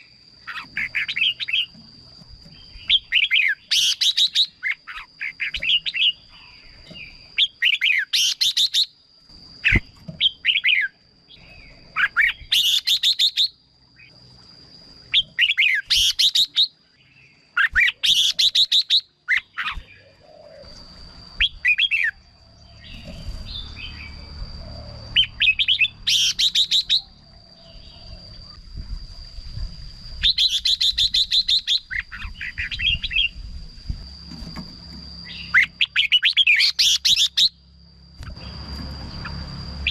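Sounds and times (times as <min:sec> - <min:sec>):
bird warbling: 0:02.6 - 0:08.9, 0:17.6 - 0:28.3, 0:35.2 - 0:37.6.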